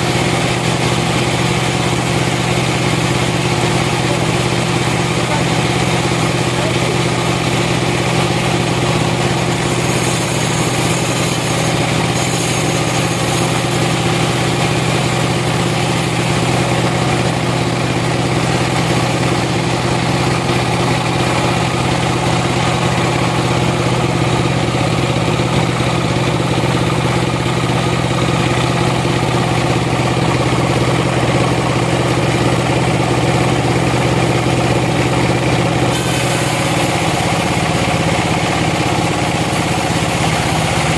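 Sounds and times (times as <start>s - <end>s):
sawmill machinery running: 0.0s - 40.9s.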